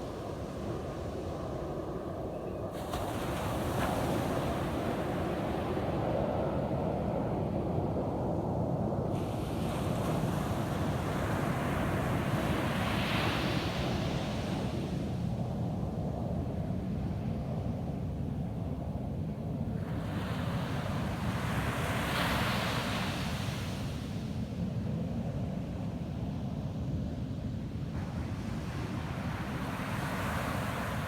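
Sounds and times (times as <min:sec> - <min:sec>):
waves washing onto sandy beach: 0:28.0 - 0:31.0.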